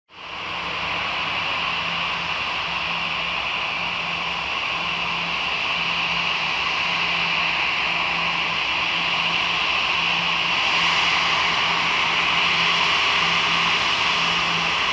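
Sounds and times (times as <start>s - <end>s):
jet engines hissing and whining: 0.2s - 14.9s.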